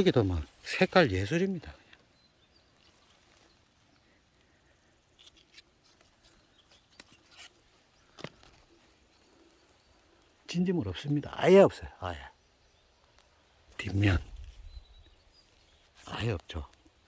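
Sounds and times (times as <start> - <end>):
foliage rustling and clicking: 0.0 - 17.0.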